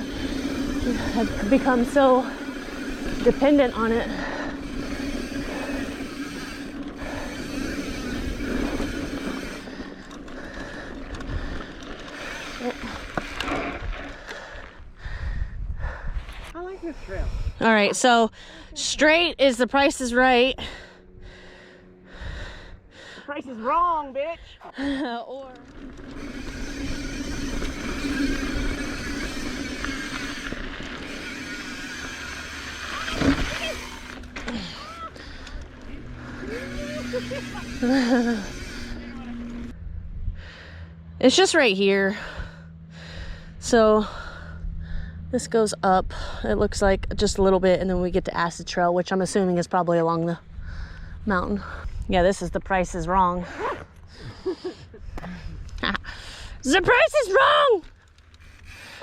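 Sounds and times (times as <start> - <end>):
tyres rolling on dirt: 0.0 - 14.8, 24.8 - 39.7
bike freehub buzzing: 0.0 - 59.0.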